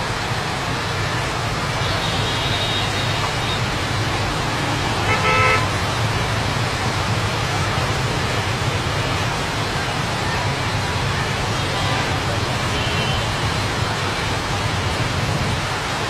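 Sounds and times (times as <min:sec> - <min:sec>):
road traffic rushing: 0:00.0 - 0:16.0
vehicle horn toot: 0:01.8 - 0:03.6, 0:05.0 - 0:05.7.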